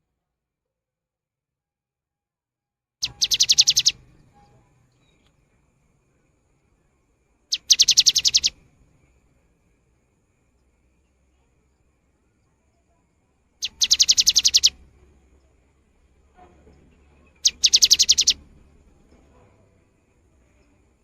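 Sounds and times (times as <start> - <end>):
bird singing rapid high notes: 3.0 - 4.6, 7.5 - 8.6, 13.6 - 14.8, 17.4 - 18.4.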